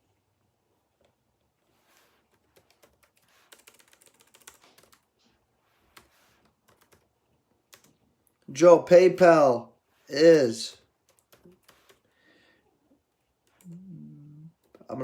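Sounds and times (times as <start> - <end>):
faint computer keyboard typing: 2.3 - 5.1, 5.9 - 8.4, 10.8 - 12.1, 13.4 - 13.8.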